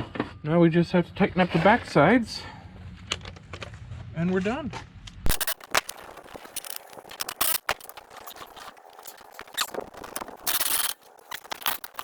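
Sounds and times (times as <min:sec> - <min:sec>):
hand tool metallic clicks and squeaks: 0:05.3 - 0:12.0.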